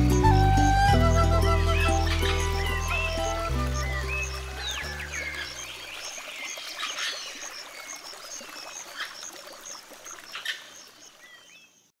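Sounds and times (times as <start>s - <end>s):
birds whistling: 0.0s - 5.9s.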